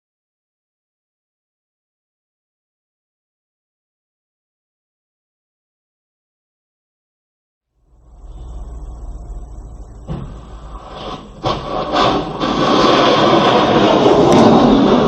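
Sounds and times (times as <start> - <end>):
rushing noise: 7.8 - 15.0
vehicle rumble: 7.8 - 15.0
sharp knocks: 10.0 - 13.2.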